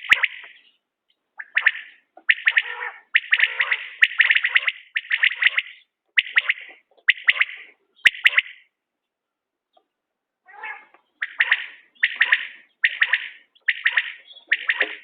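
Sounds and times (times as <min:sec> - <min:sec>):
quail calling: 0:00.0 - 0:00.8, 0:01.4 - 0:08.7, 0:10.5 - 0:15.0.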